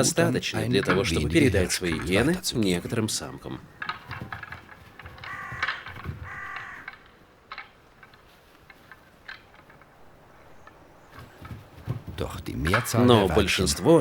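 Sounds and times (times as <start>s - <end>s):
faint knocks: 0.8s - 13.2s
harsh animal calls: 1.8s - 7.1s.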